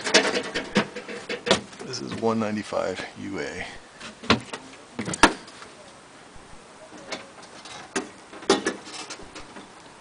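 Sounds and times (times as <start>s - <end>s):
knocks and clunks of people climbing: 0.0s - 2.4s, 4.0s - 5.6s, 7.0s - 9.8s.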